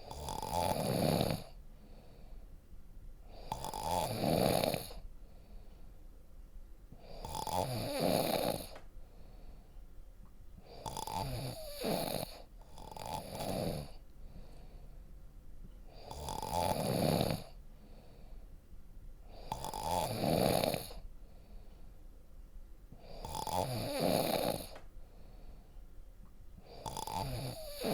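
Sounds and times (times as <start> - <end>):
deep snoring: 0.0 - 2.2, 3.3 - 5.0, 7.0 - 8.8, 10.6 - 14.7, 15.9 - 18.2, 19.3 - 21.1, 23.0 - 24.8, 26.6 - 27.9
quiet breathing: 0.0 - 27.9.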